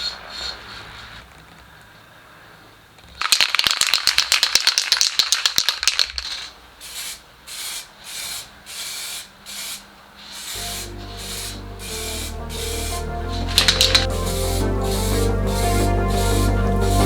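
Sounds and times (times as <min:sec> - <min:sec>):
aerosol spray hissing: 0:13.7 - 0:17.0.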